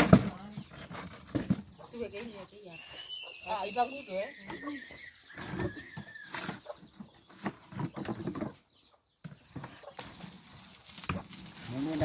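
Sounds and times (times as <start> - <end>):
bird's long high call: 2.7 - 6.4
rustles: 9.4 - 12.0.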